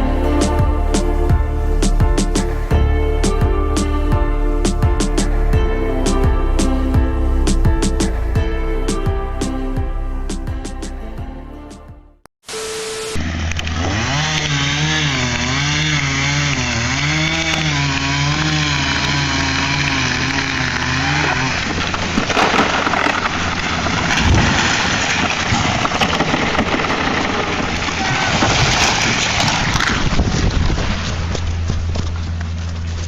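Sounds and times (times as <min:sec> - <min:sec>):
low hum: 0:00.0 - 0:14.0
chainsaw cutting wood: 0:13.1 - 0:32.0
chainsaw engine running: 0:13.2 - 0:25.5.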